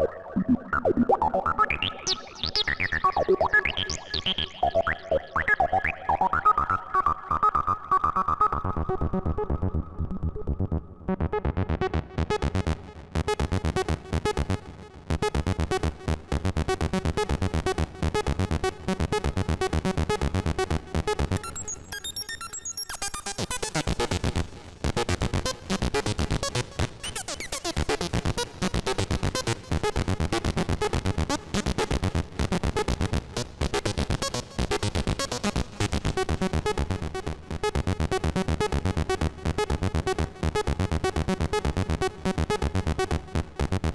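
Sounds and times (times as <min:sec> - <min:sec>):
buzzy sequenced synth notes: 0:00.0 - 0:08.6.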